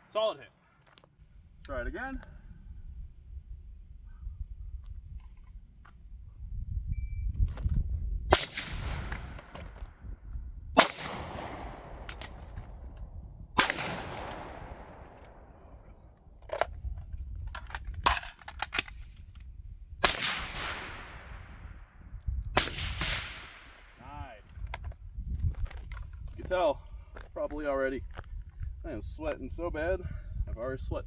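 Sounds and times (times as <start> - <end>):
suppressed gunshots with echo: 8.3 - 10.0, 10.8 - 13.0, 13.6 - 16.3, 20.0 - 22.0, 22.6 - 24.0.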